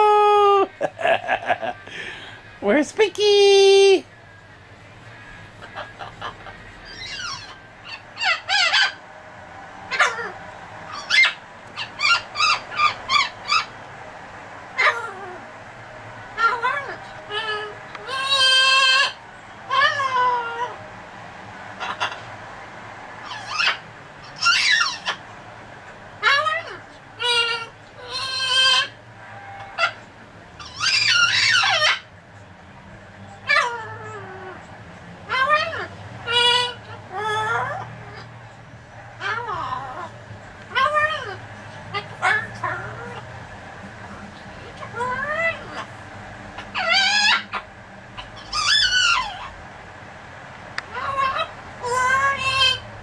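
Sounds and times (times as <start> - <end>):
parrot whistles and squawks: 5.7 - 9.0, 9.9 - 13.8, 16.4 - 20.8, 21.8 - 22.3, 23.2 - 25.2, 26.2 - 30.0, 30.6 - 32.1, 46.6 - 47.6, 48.2 - 49.5, 50.9 - 52.9.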